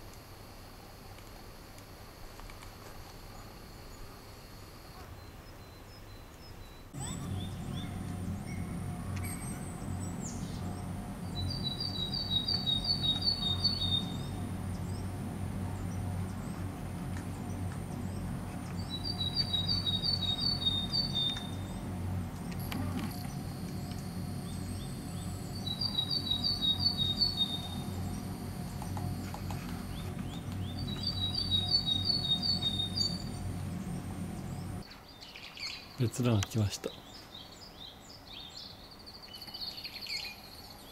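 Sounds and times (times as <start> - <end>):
small songbird singing: 5.2 - 40.9
steady low hum: 6.9 - 34.8.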